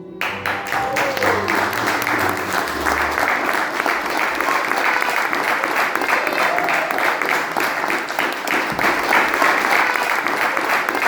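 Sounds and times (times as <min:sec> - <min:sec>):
faint music: 0:00.0 - 0:04.6
audience applauding: 0:00.2 - 0:11.0.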